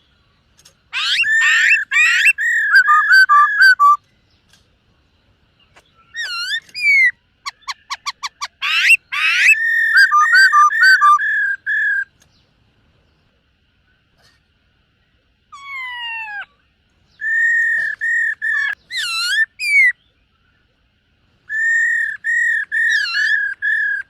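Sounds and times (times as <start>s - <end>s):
bird singing whistled phrases: 1.0s - 4.0s, 6.0s - 12.1s, 17.1s - 20.1s, 21.5s - 24.0s.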